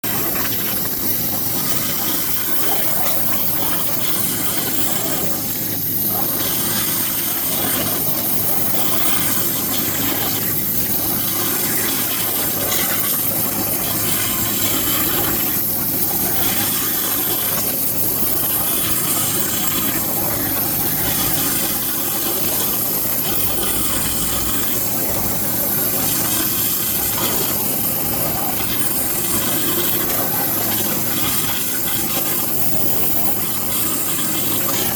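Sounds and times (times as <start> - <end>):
machine hum: 20.0 - 29.2.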